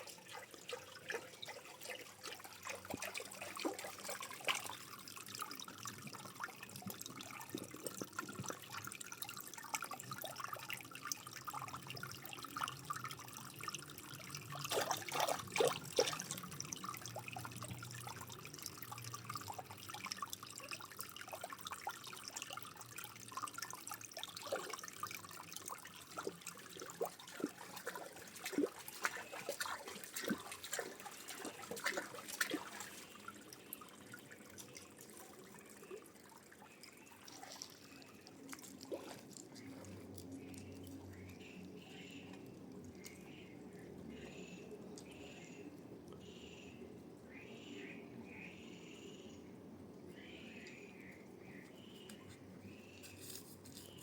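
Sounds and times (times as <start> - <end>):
water splashing: 0.0 - 41.4
water trickling and dripping: 0.0 - 46.3, 49.9 - 54.0.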